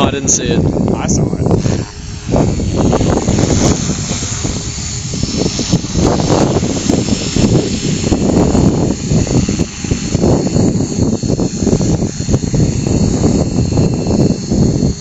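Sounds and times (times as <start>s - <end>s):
electric motor whining: 0.0s - 15.0s
rc helicopter rotor whirring: 0.0s - 15.0s
rushing rotor wash: 1.5s - 15.0s.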